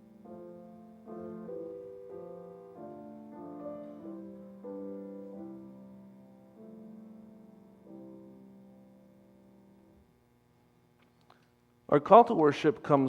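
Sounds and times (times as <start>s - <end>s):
soft slow piano chords: 0.0s - 10.4s.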